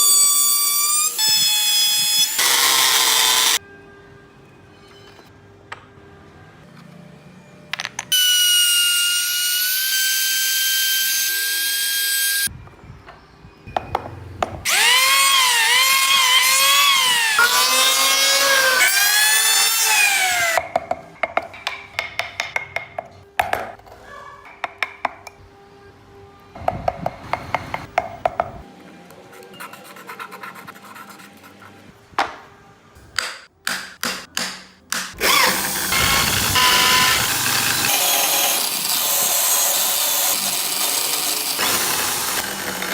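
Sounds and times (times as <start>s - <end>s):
power carving tool whining: 0.0s - 3.6s, 14.7s - 20.6s, 35.2s - 42.9s.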